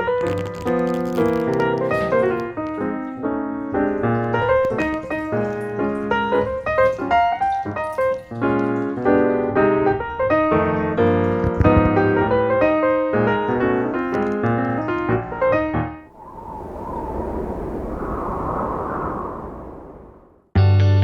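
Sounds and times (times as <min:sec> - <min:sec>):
steady noise: 0:16.1 - 0:20.5.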